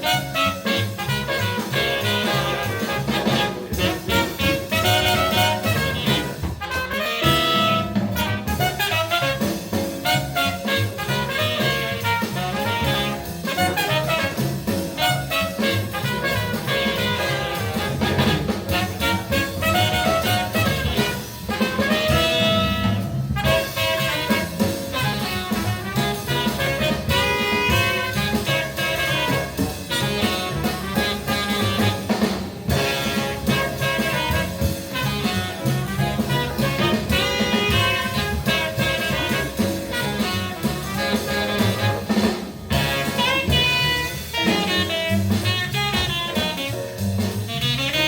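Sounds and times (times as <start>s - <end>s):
bass: 0.0s - 48.0s
drums: 0.0s - 48.0s
jazz record: 0.0s - 48.0s
saxophone: 0.0s - 48.0s
trumpet: 0.0s - 48.0s.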